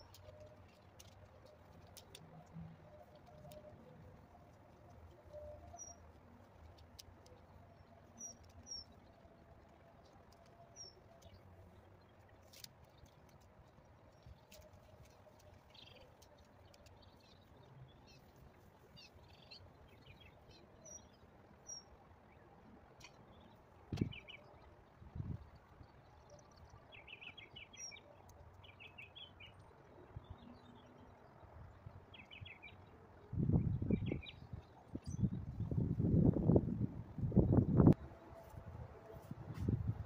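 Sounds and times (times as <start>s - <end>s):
faint clicks: 0.0s - 20.2s.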